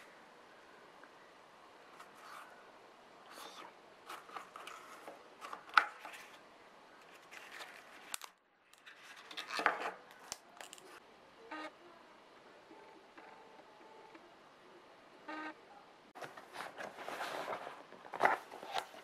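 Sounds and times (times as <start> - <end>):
handling rustling and scraping: 3.3 - 6.4, 7.0 - 11.0, 16.2 - 19.0.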